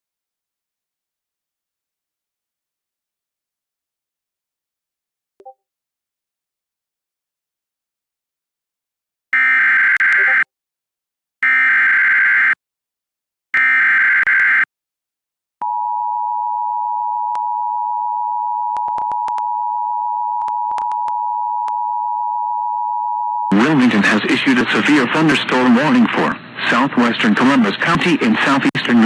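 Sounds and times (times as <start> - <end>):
two-tone alert signal: 10.0 - 10.5.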